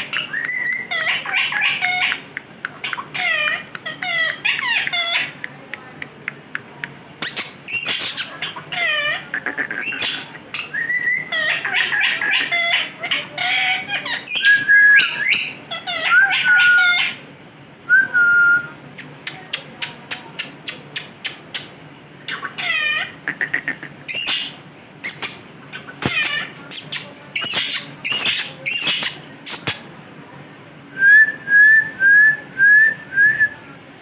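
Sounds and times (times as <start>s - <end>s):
parrot whistling and calling: 0.0s - 5.4s, 7.2s - 17.2s, 17.9s - 29.9s
parrot clicks: 0.2s - 8.3s, 26.0s - 29.9s.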